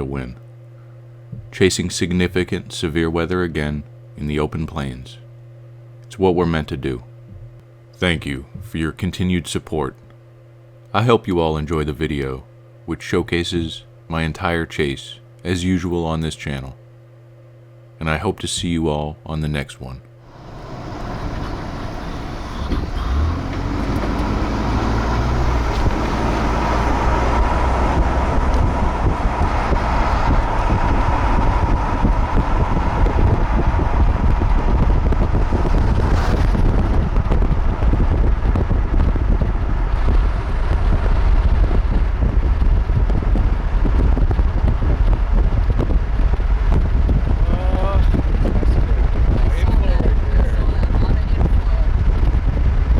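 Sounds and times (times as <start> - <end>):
road rumble: 20.2 - 52.9
wind noise: 20.3 - 52.9.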